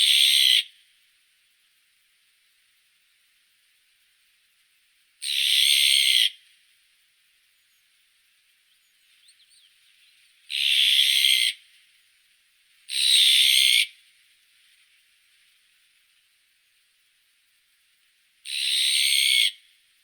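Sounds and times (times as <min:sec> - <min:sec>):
magpie harsh rasping calls: 0:05.2 - 0:06.3, 0:10.5 - 0:11.6, 0:18.5 - 0:19.6
faint short bird chirps: 0:07.5 - 0:07.9, 0:08.6 - 0:10.8.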